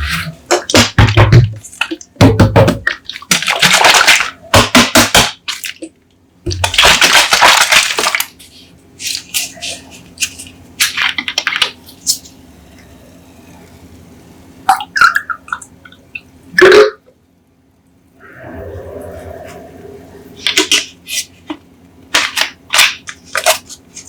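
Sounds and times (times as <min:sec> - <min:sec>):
soda sloshing: 0:02.8 - 0:05.9.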